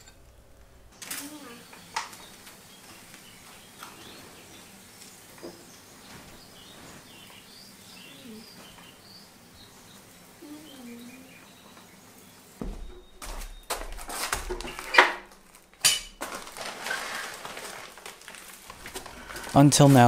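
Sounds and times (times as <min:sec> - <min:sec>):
steady low hiss: 0:00.0 - 0:20.0
faint bird chirps: 0:05.4 - 0:13.7.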